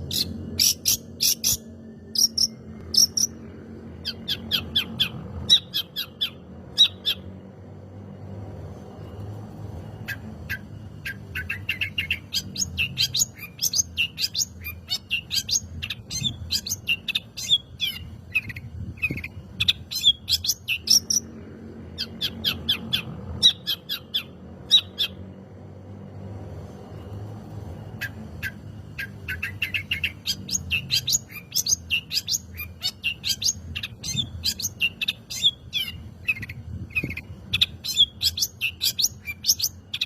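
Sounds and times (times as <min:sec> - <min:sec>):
bird singing chattering notes: 0:00.0 - 0:07.4, 0:10.0 - 0:21.3, 0:27.9 - 0:40.0.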